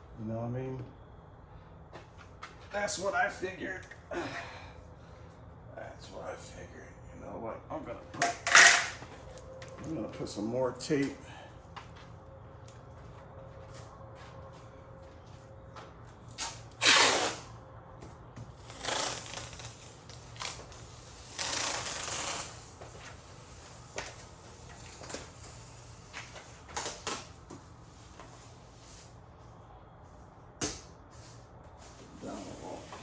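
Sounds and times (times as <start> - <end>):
tape pulled off roll: 16.3 - 17.6.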